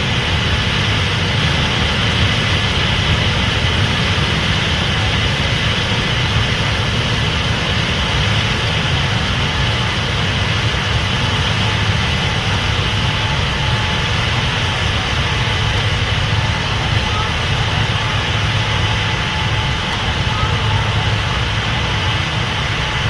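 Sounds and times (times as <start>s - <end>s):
combine engine drone: 0.0s - 23.0s
threshing machinery whirring: 0.0s - 23.0s.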